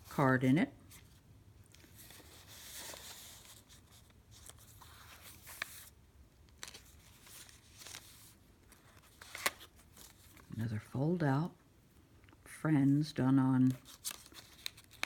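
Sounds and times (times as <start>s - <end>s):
paper and fabric rustling: 0.0s - 10.5s, 13.6s - 15.0s.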